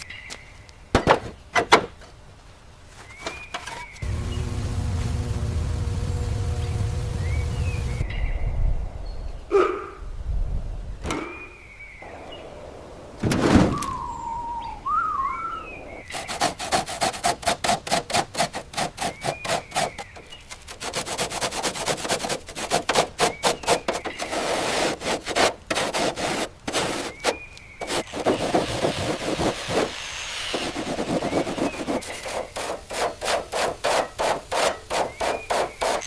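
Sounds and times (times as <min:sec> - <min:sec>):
tool scraping rusted metal: 0:03.1 - 0:04.1, 0:16.1 - 0:36.0
high chirps: 0:13.7 - 0:16.2.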